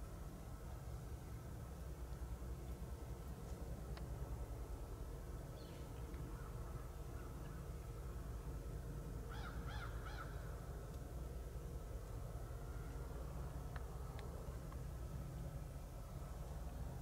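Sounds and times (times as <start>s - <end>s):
steady low rumble: 0.0s - 17.0s
bird calling: 9.3s - 10.4s.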